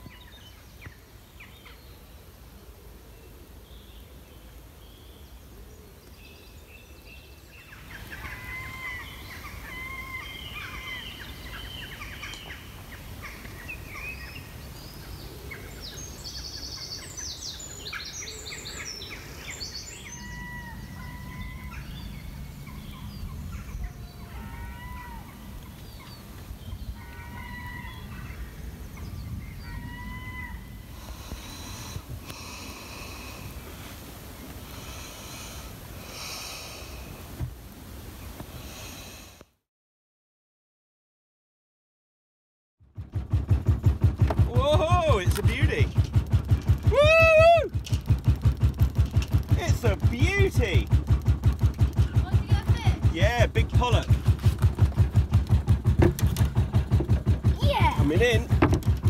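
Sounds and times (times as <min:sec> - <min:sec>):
birds whistling: 0:06.0 - 0:33.6, 0:44.5 - 0:51.0
rapid bird trills: 0:07.5 - 0:33.7, 0:43.6 - 0:59.0
low background rumble: 0:42.9 - 0:59.0.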